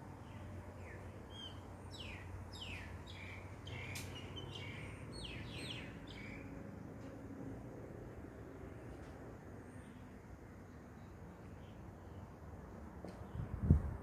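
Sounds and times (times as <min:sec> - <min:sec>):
birds chirping: 0:00.2 - 0:06.6.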